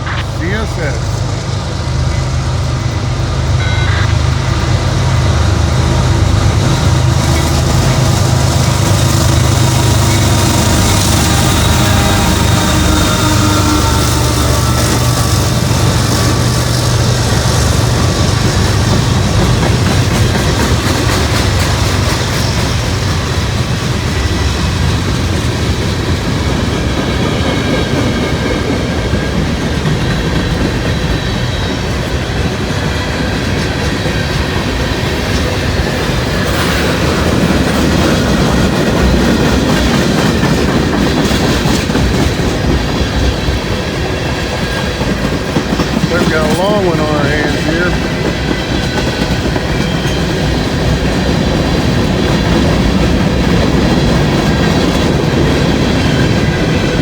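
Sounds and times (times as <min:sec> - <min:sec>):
diesel locomotive hum: 0:00.0 - 0:57.0
freight cars rolling on rails: 0:00.0 - 0:57.0
high wheel squeal: 0:02.1 - 0:18.7.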